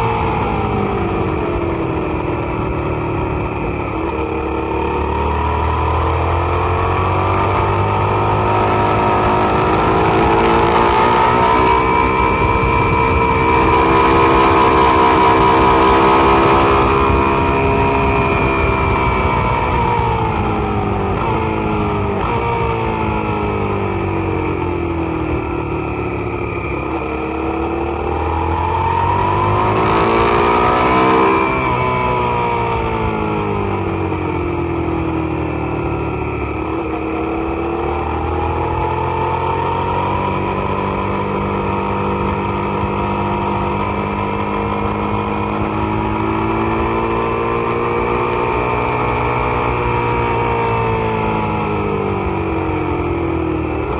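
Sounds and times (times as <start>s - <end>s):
motorcycle engine revving: 0.0s - 53.9s
wind rush: 8.3s - 34.6s.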